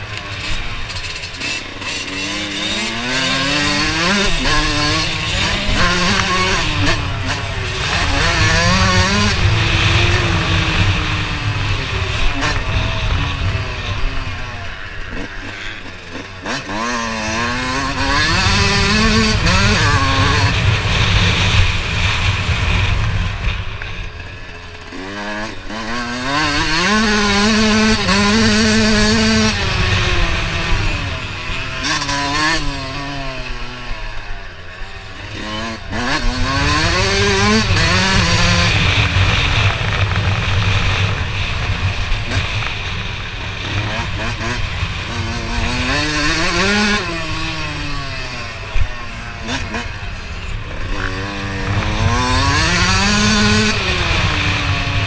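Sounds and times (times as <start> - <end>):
dirt bike engine revving: 0.0 - 55.0
low rushing noise: 37.2 - 55.0.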